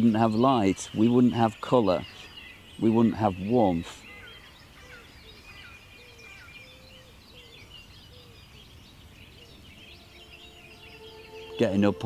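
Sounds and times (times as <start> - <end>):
songbirds chirping and singing: 0.0 - 12.0.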